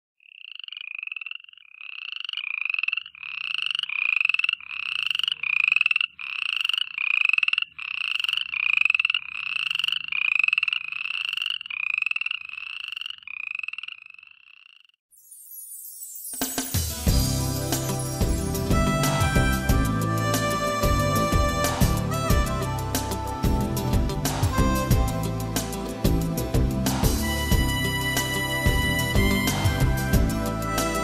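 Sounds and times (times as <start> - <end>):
buzzy croaking calls: 0.2 - 15.0
music: 15.3 - 31.0.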